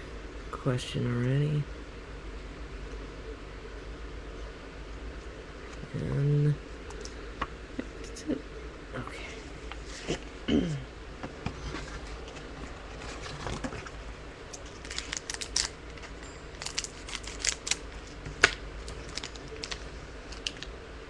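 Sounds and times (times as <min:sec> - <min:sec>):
wrapper crinkling: 0:14.6 - 0:20.7.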